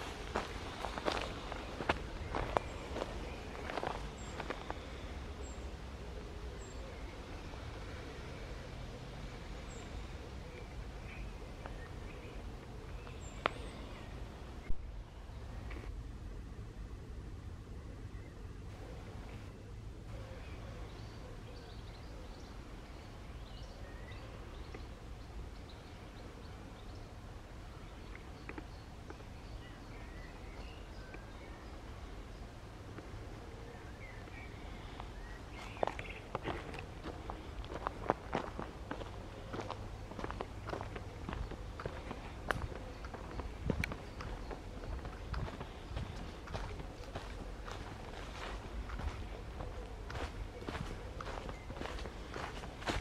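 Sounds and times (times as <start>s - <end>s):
footsteps: 0.0s - 4.8s, 35.6s - 53.0s
low steady rumble: 0.0s - 53.0s
small birds chirping and whistling: 0.2s - 5.7s.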